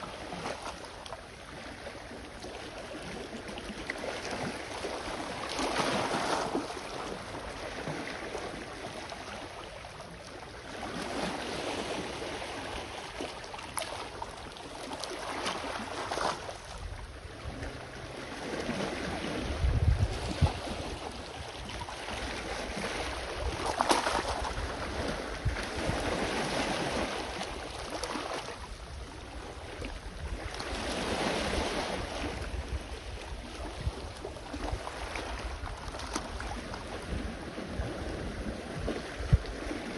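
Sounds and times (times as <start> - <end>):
wind rumbling on microphone: 15.3 - 39.9.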